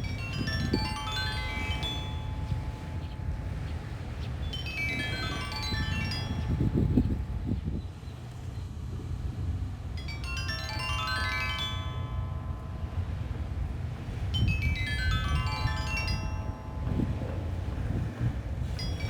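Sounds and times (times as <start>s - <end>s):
stone lithophone notes ringing: 0.0s - 7.1s, 10.0s - 19.0s
low wind rumble: 0.0s - 19.0s.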